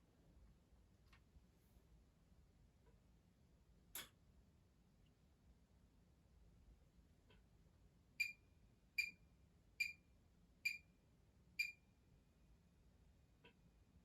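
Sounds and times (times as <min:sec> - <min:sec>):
washing machine electronic beeps: 0:08.2 - 0:11.0, 0:11.6 - 0:11.9.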